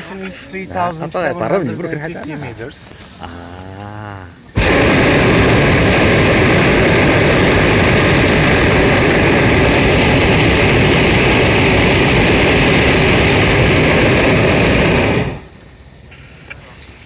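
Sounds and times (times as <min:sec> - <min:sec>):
propane burner blast: 0:04.5 - 0:15.9.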